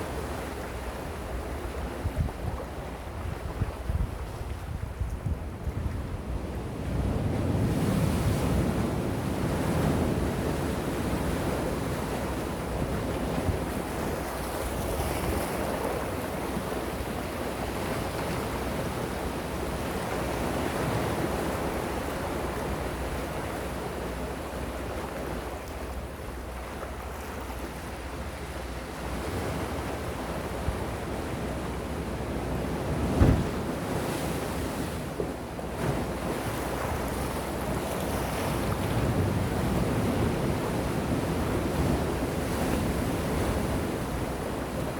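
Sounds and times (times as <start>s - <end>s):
short low thump: 33.2s - 33.6s.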